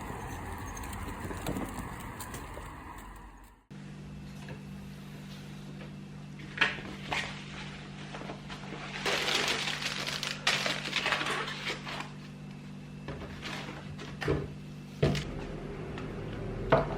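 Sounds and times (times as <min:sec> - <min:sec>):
objects clattering and rustling: 0:13.0 - 0:15.3.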